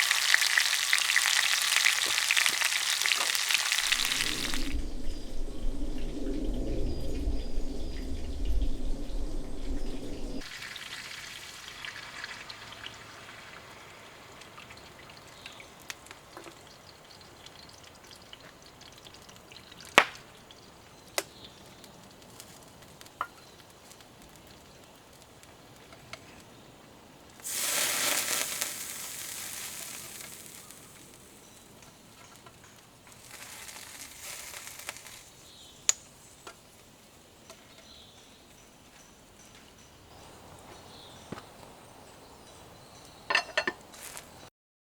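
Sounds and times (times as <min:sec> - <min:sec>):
food sizzling in a pan: 0:00.0 - 0:06.2, 0:10.4 - 0:26.4, 0:27.4 - 0:37.2, 0:43.6 - 0:44.4.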